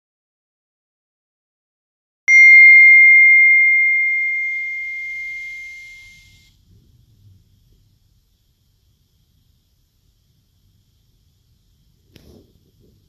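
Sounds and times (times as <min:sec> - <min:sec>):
bell-like ringing tone: 0:02.3 - 0:06.5.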